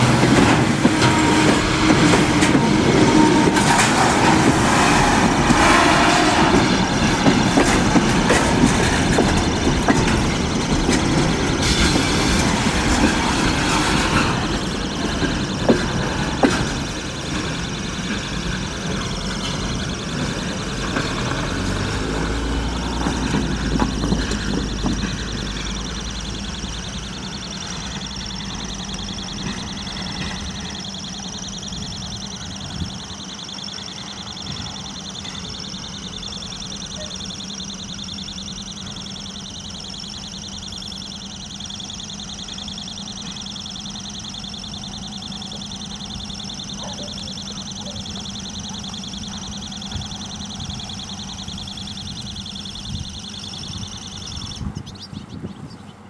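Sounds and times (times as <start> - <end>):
diesel locomotive engine hum: 0.0 - 56.0
train wheel rumble: 0.0 - 56.0.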